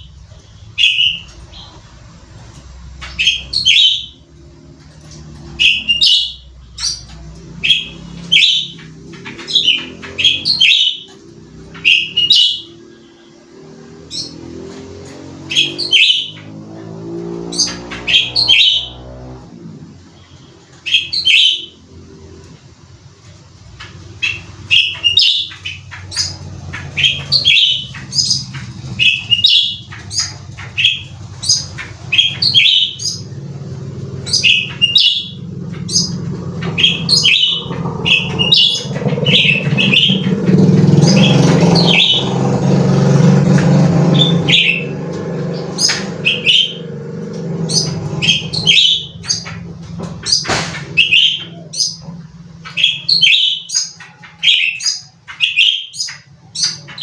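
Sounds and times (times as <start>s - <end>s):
songbird sharp chirps: 0.0s - 1.9s, 2.6s - 4.4s, 5.0s - 19.4s, 23.8s - 57.0s.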